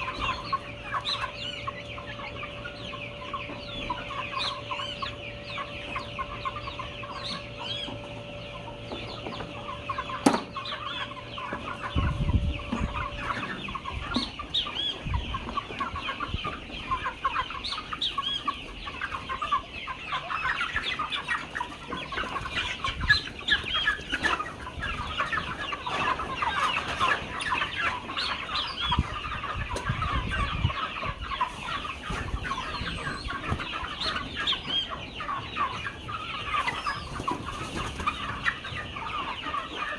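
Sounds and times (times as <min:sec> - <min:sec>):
steady hum: 0:00.0 - 0:14.4
chickens clucking: 0:00.0 - 0:39.9.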